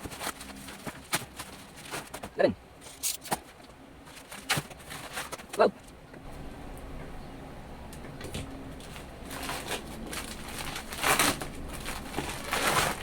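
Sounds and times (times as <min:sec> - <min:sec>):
parcel packaging crinkling: 0:00.0 - 0:05.6, 0:08.8 - 0:13.0.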